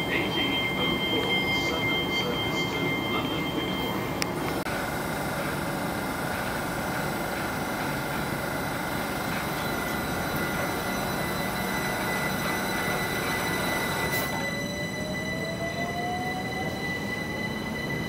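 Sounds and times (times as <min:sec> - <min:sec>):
high whining tones: 0:00.0 - 0:04.6, 0:08.8 - 0:18.0
train wheels rumbling on rail: 0:00.0 - 0:18.0.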